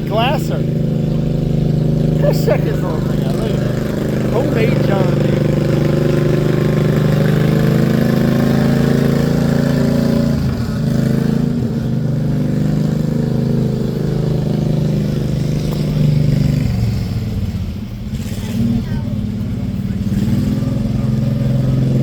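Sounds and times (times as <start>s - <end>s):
tractor engine running: 0.0s - 18.3s.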